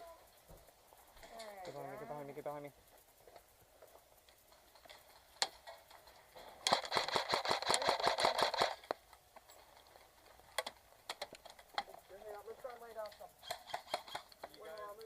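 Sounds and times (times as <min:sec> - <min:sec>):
airsoft gun automatic fire: 0:06.5 - 0:09.0, 0:13.4 - 0:14.4.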